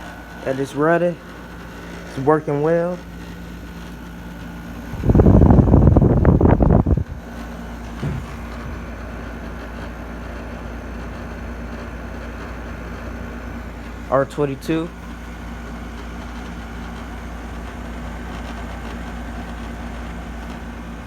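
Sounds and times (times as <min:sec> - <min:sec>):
air conditioner humming: 0:00.0 - 0:21.0.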